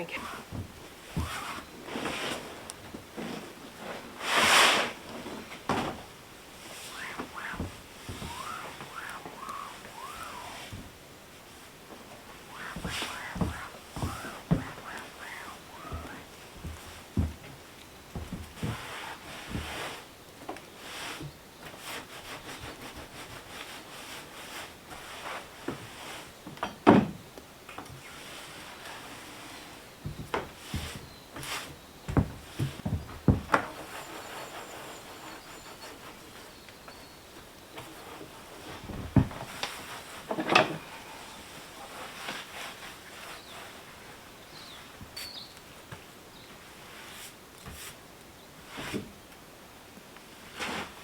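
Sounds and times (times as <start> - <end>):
soft rustling: 0.0 - 26.4, 27.9 - 49.4
faint outdoor background: 0.0 - 51.0
dull thump: 6.9 - 11.0, 12.2 - 17.6.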